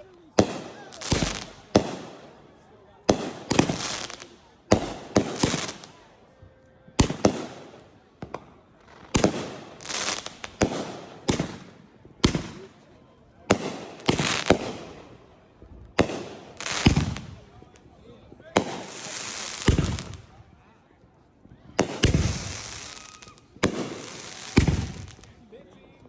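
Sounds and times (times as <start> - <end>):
fireworks bangs: 0.0 - 2.4, 3.0 - 6.1, 6.9 - 12.8, 13.4 - 15.3, 15.9 - 17.8, 18.4 - 20.4, 21.7 - 25.5
fireworks crackling hiss: 0.3 - 2.3, 3.1 - 6.1, 7.0 - 12.7, 13.5 - 15.0, 16.0 - 17.5, 18.6 - 20.3, 21.8 - 25.4.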